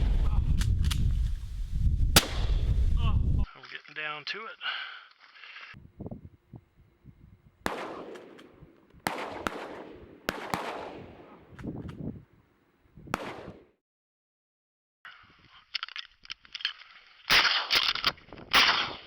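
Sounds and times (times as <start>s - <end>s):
shotgun shots with echo: 2.2s - 2.7s, 7.6s - 11.6s, 13.1s - 13.8s, 18.5s - 19.0s.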